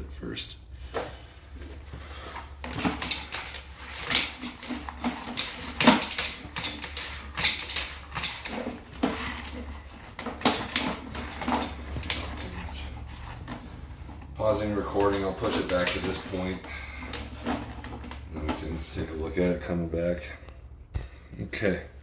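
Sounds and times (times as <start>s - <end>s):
clicks and knocks from handled gear: 13.4s - 19.0s.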